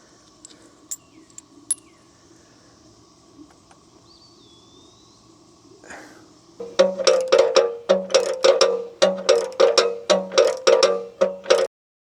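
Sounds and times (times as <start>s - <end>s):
faint steady hum: 0.0s - 11.7s
metal washers clinking: 0.4s - 1.9s, 6.6s - 11.7s.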